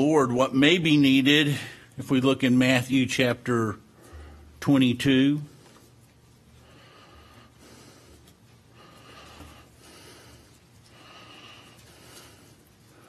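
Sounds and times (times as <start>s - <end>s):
soft breathing: 3.8s - 4.7s, 5.4s - 13.0s.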